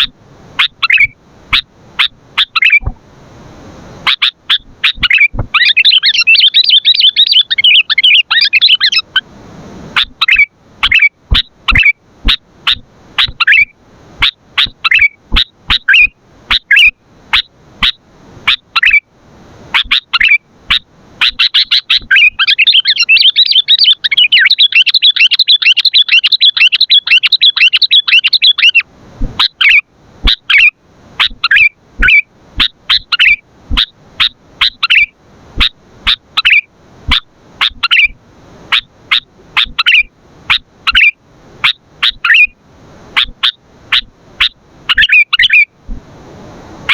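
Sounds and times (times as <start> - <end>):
bird chirping: 0.0 - 2.9, 4.0 - 9.2, 10.0 - 19.0, 19.8 - 28.8, 29.4 - 42.6, 43.2 - 45.7.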